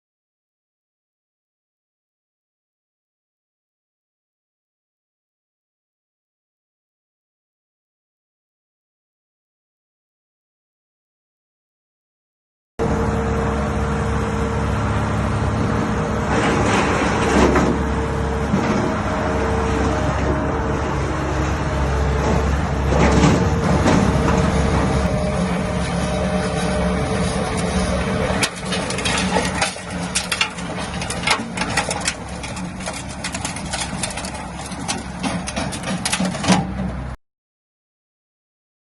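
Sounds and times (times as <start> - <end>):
skid steer engine running: 12.8 - 37.2
rapid clicks and knocks: 28.4 - 36.7.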